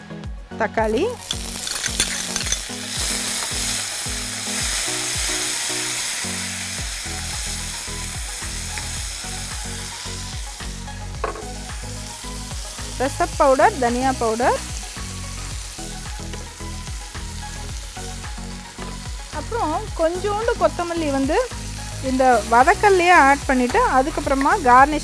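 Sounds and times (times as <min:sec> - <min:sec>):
tomatoes sizzling in oil: 0:00.8 - 0:25.0
ladle stirring in pan: 0:01.2 - 0:03.6.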